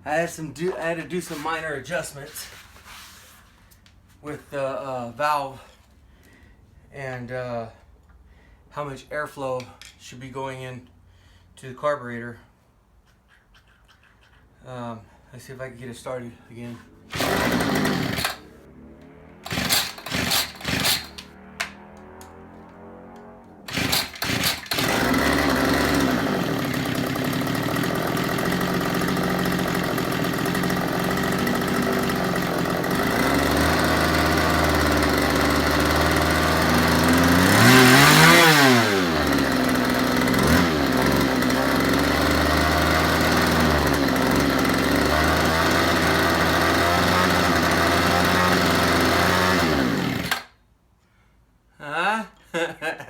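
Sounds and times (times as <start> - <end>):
string trimmer engine: 16.7 - 50.6.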